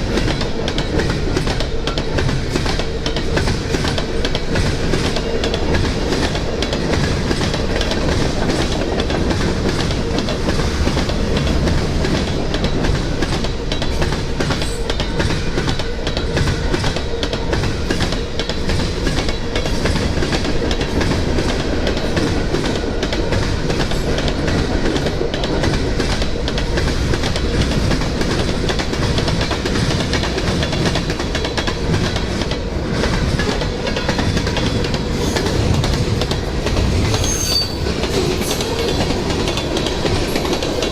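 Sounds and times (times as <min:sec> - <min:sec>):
freight train wheels clicking: 0:00.0 - 0:40.9.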